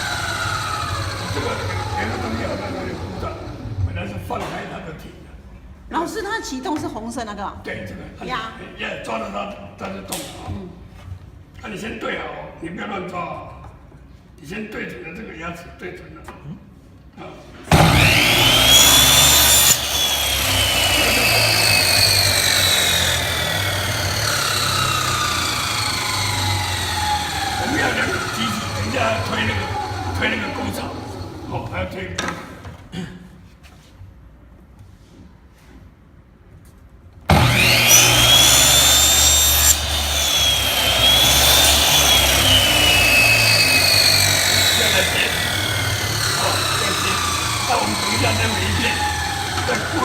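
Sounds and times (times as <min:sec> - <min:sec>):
electric saw motor whine: 0:00.0 - 0:03.5, 0:17.7 - 0:31.8, 0:37.3 - 0:50.0.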